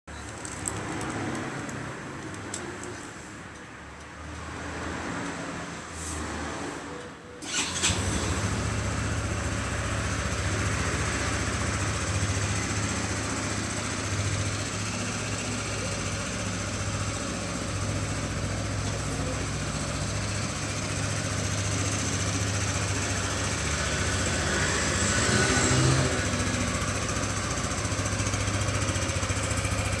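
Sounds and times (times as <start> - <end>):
scooter engine starting and idling: 7.4 - 30.0.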